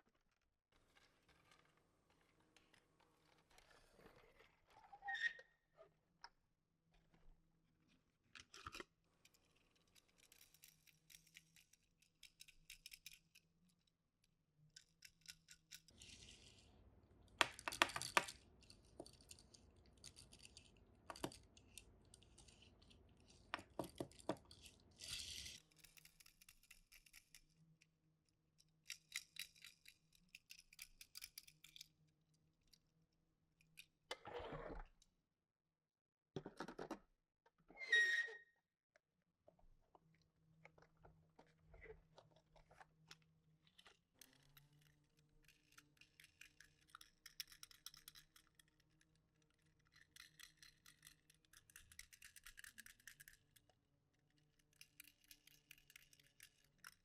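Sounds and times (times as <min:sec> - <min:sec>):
toy car clicks and taps: 0:10.0 - 0:13.5, 0:14.7 - 0:15.9, 0:17.4 - 0:19.4, 0:20.0 - 0:22.9, 0:23.5 - 0:24.7, 0:25.5 - 0:27.6, 0:28.8 - 0:31.9, 0:44.2 - 0:57.0.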